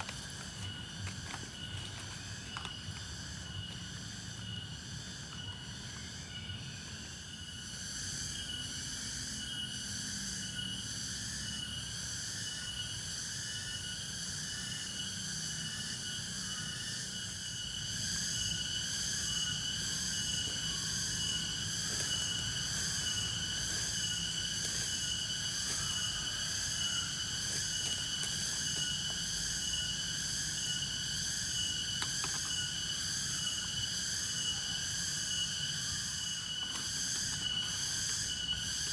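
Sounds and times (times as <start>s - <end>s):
crickets and insects trilling: 0.0s - 38.9s.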